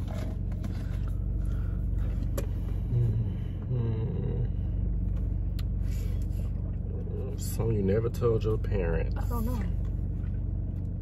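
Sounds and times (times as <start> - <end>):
low murmur: 0.0 - 8.2
car engine humming: 0.0 - 11.0.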